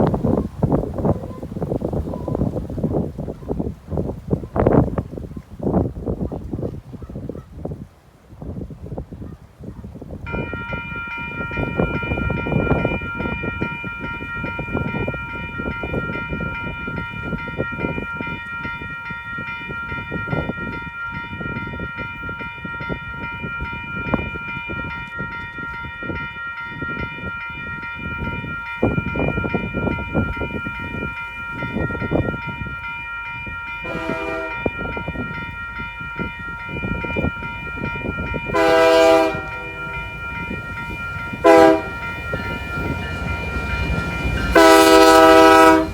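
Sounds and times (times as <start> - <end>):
train rumble: 0.0 - 45.9
crossing bells ringing: 10.3 - 45.9
locomotive horn blast: 31.5 - 35.3, 38.5 - 45.9.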